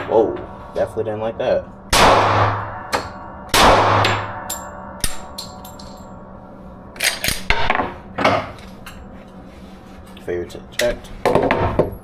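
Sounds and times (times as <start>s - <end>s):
handgun shots echoing: 2.0s - 6.0s.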